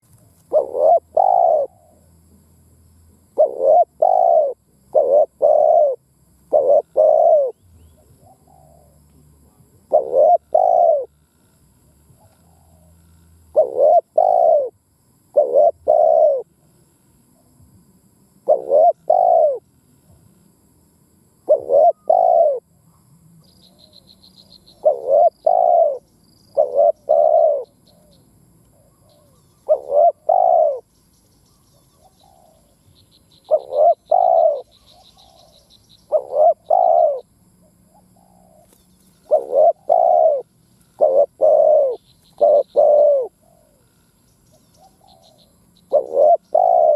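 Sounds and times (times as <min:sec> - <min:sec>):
small bird chirping: 0:00.0 - 0:02.1, 0:03.3 - 0:17.5, 0:21.4 - 0:46.9
dove cooing: 0:00.4 - 0:02.1, 0:03.3 - 0:11.3, 0:12.1 - 0:16.6, 0:18.4 - 0:19.6, 0:21.4 - 0:22.7, 0:23.6 - 0:30.9, 0:31.5 - 0:32.8, 0:33.4 - 0:46.9.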